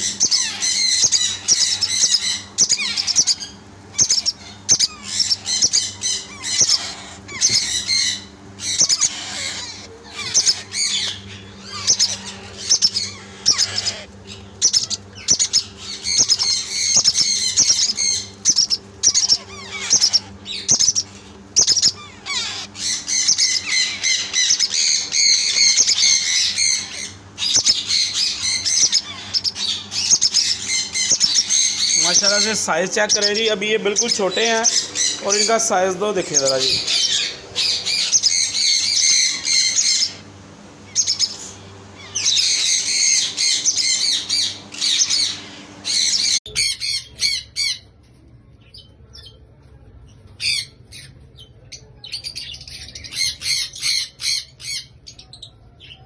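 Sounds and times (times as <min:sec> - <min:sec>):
parakeet chicks squawking: 0:00.0 - 0:56.0.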